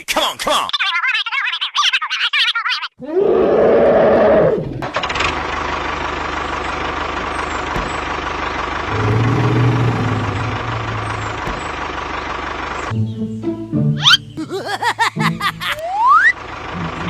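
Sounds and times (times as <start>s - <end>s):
deeper engine tone: 4.6s - 13.6s, 16.0s - 17.0s
heavy machine engine rumbling: 4.9s - 13.0s, 16.4s - 17.0s.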